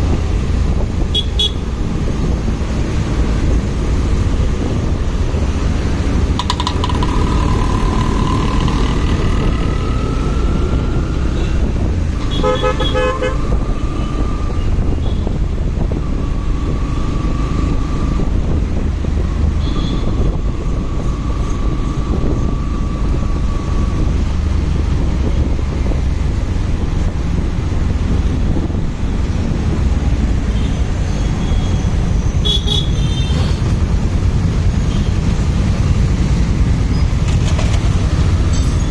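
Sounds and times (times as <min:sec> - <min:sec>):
wind rumble: 0:00.0 - 0:32.4
motorcycle road noise: 0:00.0 - 0:38.9
vehicle horn toots: 0:12.2 - 0:13.4.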